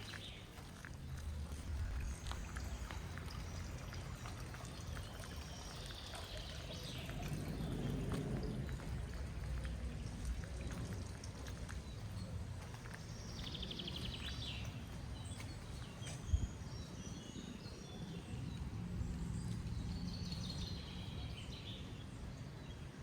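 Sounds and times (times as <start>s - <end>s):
water running and trickling: 0.0s - 16.7s
small water drips: 0.0s - 22.5s
low rumble: 6.8s - 13.3s.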